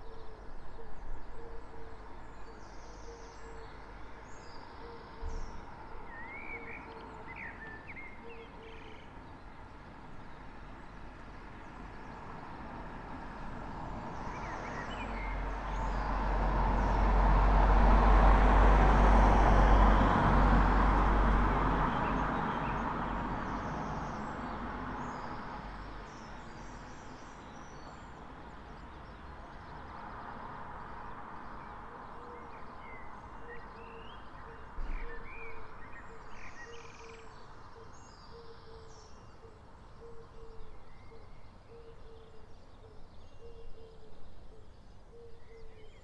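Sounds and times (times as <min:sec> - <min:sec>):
vehicle passing: 0:14.7 - 0:25.8.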